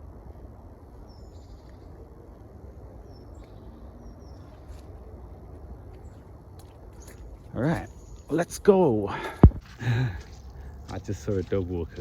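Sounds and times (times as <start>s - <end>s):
faint bird chirps: 1.0s - 9.0s.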